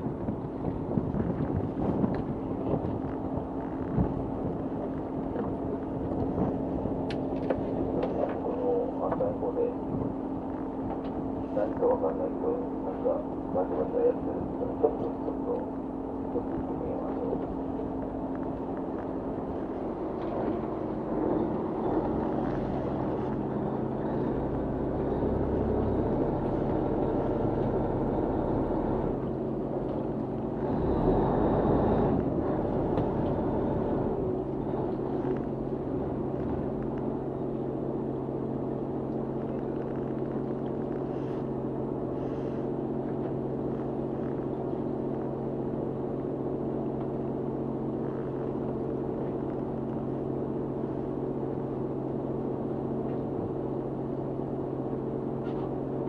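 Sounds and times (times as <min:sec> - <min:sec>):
boat engine humming: 0:00.0 - 0:56.0.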